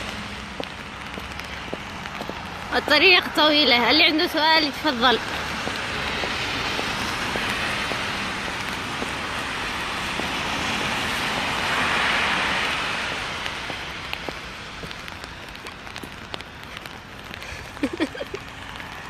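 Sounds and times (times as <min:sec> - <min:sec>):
steady rain hiss: 0:00.0 - 0:19.0
tyres hissing on wet road: 0:00.0 - 0:19.0.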